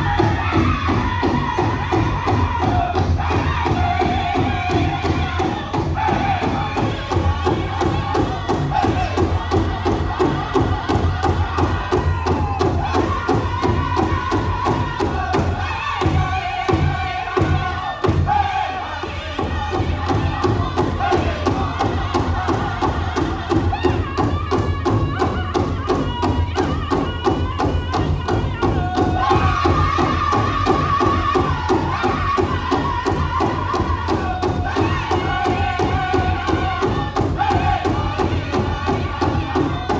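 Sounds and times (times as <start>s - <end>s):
big drum beat: 0.0s - 39.9s
drum group singing: 0.0s - 39.9s.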